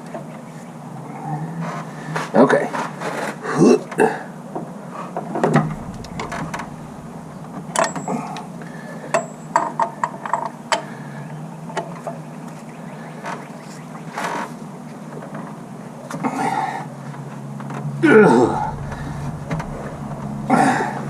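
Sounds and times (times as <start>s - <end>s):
low hum: 5.4s - 9.1s, 18.0s - 21.0s.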